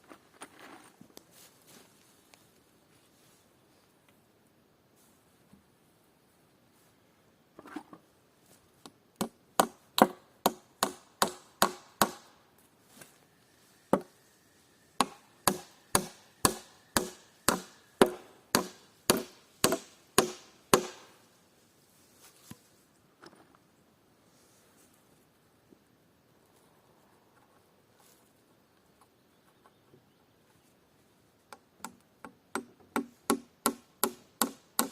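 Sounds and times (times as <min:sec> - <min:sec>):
hammer driving nails into wood: 0:15.0 - 0:21.1, 0:31.8 - 0:34.9.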